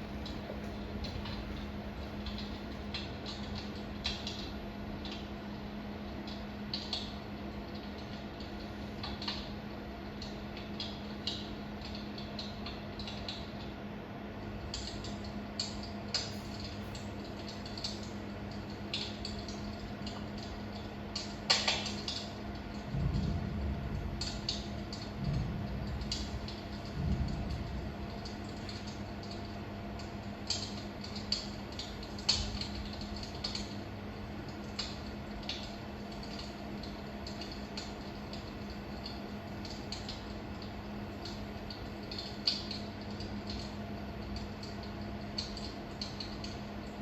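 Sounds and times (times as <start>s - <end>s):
steady low hum: 0.0s - 47.0s
wood fire crackling and popping: 0.0s - 47.0s.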